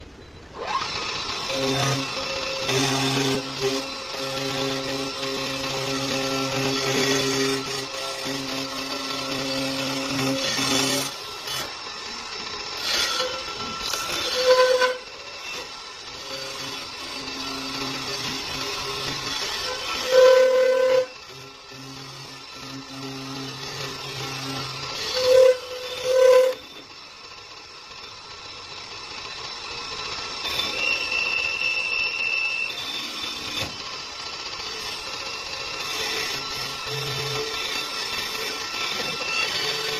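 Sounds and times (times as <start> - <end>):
lathe cutting wood hissing: 0.6 - 39.9
high whine: 23.9 - 35.8.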